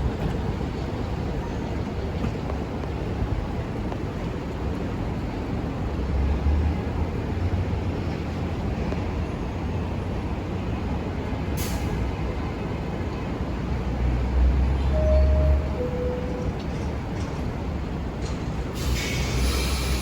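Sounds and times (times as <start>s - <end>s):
subway train low rumble: 0.0s - 20.0s
brake air hiss: 18.7s - 20.0s.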